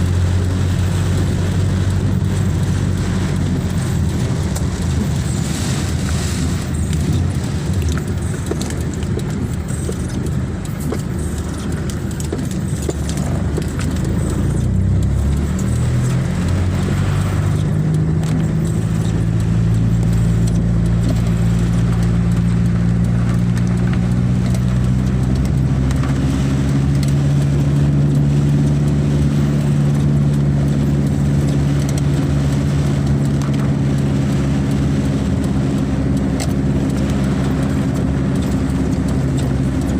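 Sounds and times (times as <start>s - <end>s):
dense low rumble: 0.0s - 39.9s
engine hum rising in pitch: 12.5s - 32.2s.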